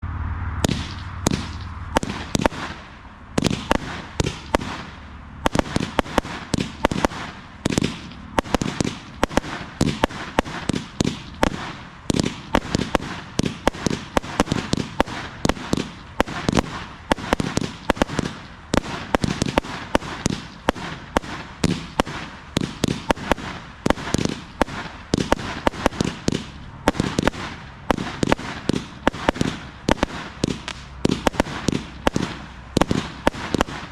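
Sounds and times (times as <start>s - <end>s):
firework crackling: 0.4s - 33.9s
firework launch thumps and bursts: 0.6s - 33.9s.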